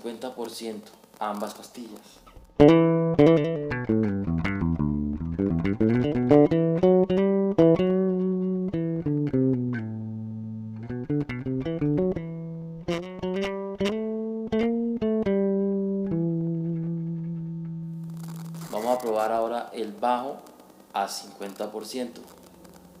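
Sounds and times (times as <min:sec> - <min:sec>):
electric bass plucked notes: 0:02.4 - 0:19.3.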